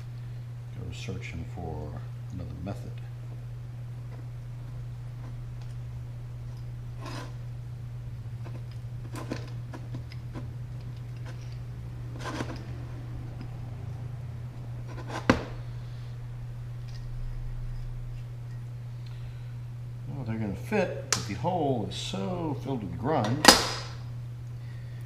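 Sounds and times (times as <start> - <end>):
steady low hum: 0.0 - 25.0
light metal clicks and scrapes: 8.4 - 12.7.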